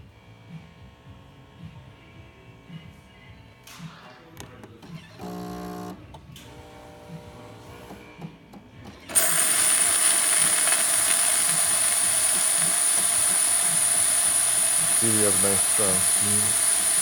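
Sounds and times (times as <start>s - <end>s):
espresso machine steam hiss: 9.1s - 17.0s.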